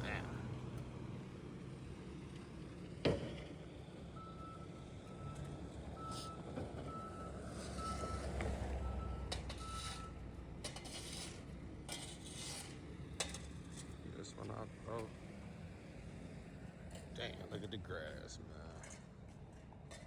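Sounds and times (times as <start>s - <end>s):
diesel engine rumble: 0.0s - 20.0s
vehicle backup alarm beeping: 4.0s - 10.4s.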